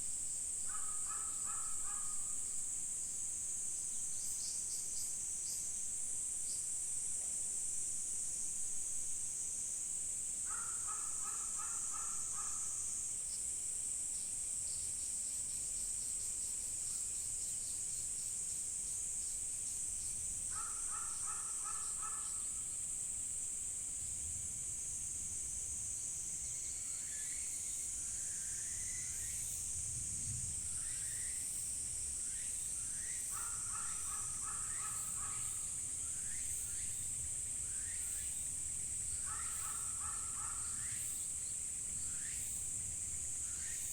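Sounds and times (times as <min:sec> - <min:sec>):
insect chorus: 0:00.0 - 0:43.9
small birds chirping: 0:32.4 - 0:37.1, 0:37.7 - 0:41.4.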